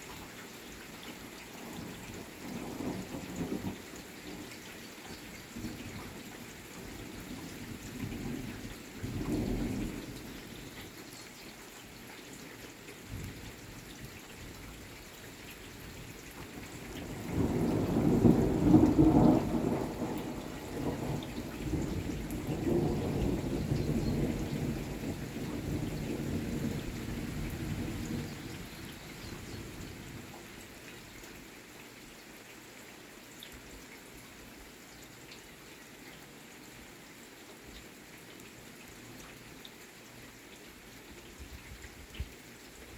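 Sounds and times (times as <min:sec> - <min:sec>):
steady rain: 0:00.0 - 0:42.9
thunder rumbling: 0:17.0 - 0:30.2.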